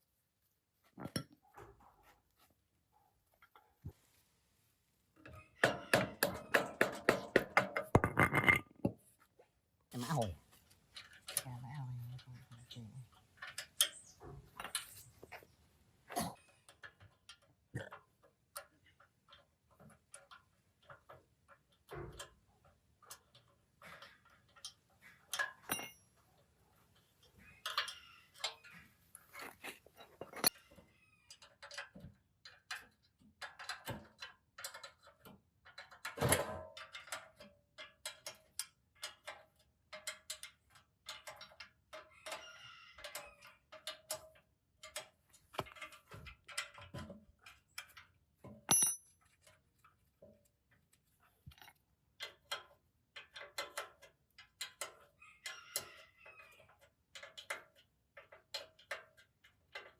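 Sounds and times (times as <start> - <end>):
hand tools tapping metal: 5.6 - 8.6, 23.1 - 30.7, 43.0 - 49.6
faint metallic ringing: 25.7 - 26.2, 48.7 - 49.3.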